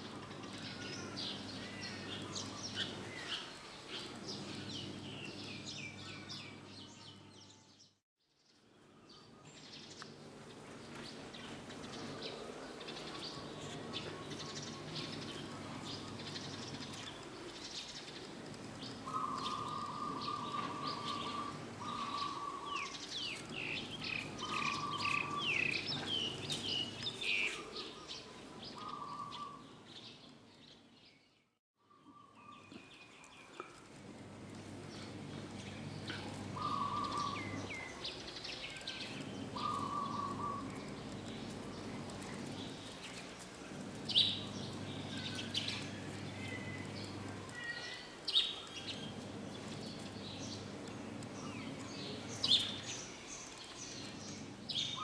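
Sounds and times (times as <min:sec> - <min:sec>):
birds chirping and calling: 0:00.0 - 0:07.9, 0:09.0 - 0:55.0
low background hum: 0:32.2 - 0:55.0.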